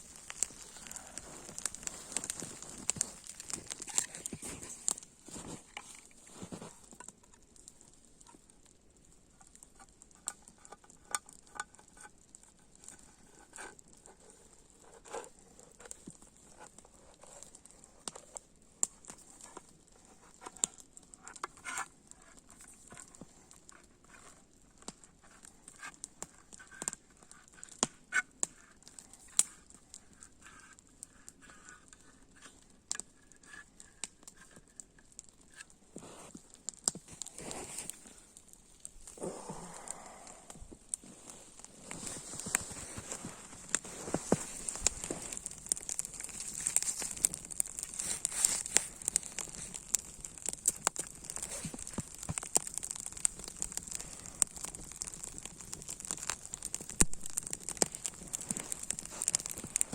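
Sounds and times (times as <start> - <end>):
faint steady hiss: 0.0 - 21.3, 28.5 - 52.6.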